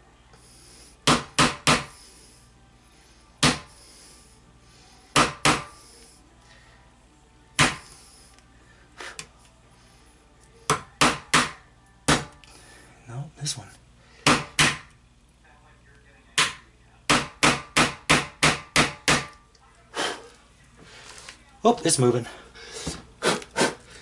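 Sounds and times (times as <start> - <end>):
hammer tapping metal: 16.4 - 19.4.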